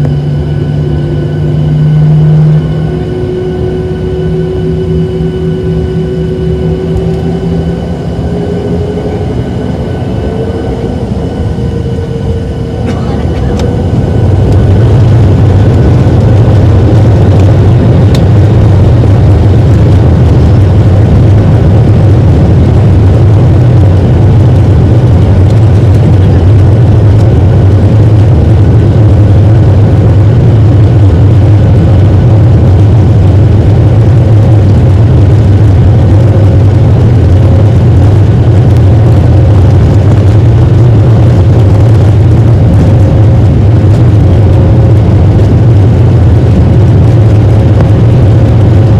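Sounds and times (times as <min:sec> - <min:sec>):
jet engines drone in cabin: 0:00.0 - 0:48.9.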